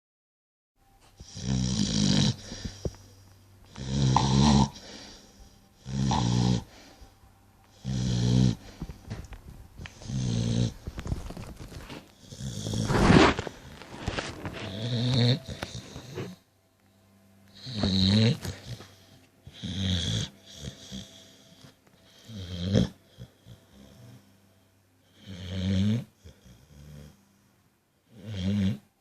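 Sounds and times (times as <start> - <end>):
dog snoring: 1.2 - 7.1, 7.7 - 16.5, 17.5 - 24.4, 25.0 - 27.4, 28.0 - 29.0.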